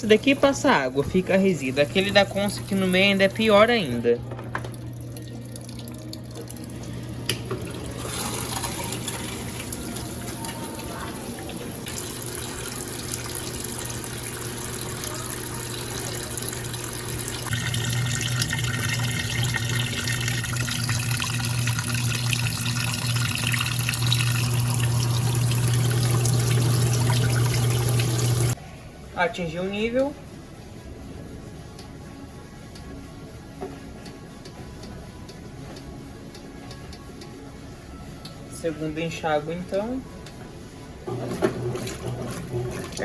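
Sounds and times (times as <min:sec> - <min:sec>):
low machine hum: 0:00.0 - 0:43.0
water rushing into tub: 0:07.7 - 0:10.9, 0:11.6 - 0:28.6, 0:41.2 - 0:43.0.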